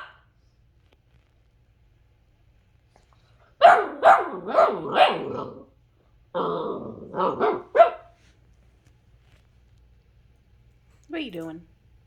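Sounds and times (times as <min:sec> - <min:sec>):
puppy barking: 0:00.0 - 0:00.2, 0:03.6 - 0:05.6, 0:06.4 - 0:08.2.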